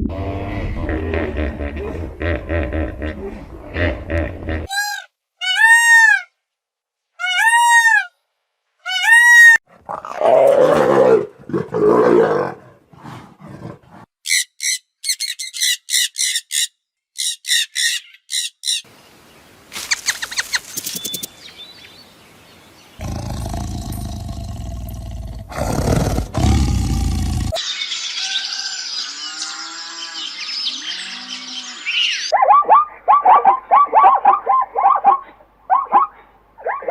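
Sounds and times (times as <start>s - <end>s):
rough low animal roar: 9.8s - 14.1s, 23.0s - 27.6s.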